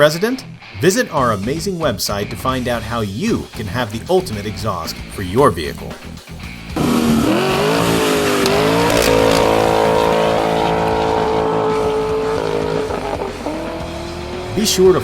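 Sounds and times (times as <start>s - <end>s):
car engine revving: 6.7s - 15.0s.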